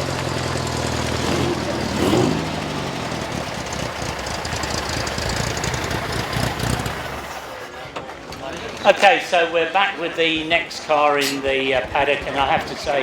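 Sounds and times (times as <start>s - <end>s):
car engine running: 0.0s - 7.5s.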